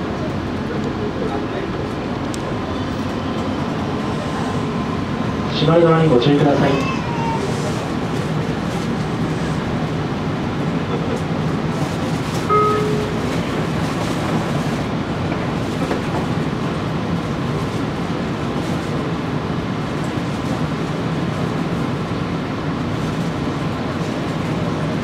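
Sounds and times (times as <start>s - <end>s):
train cabin rumble: 0.0s - 25.0s
short beep: 12.5s - 13.4s.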